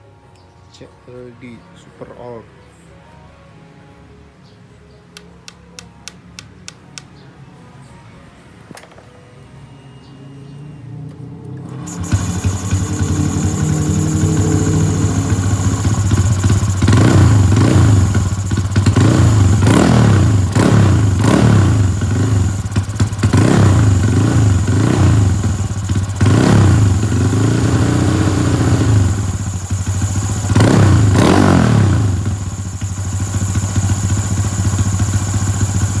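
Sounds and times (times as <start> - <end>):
motorcycle engine revving: 11.3 - 36.0.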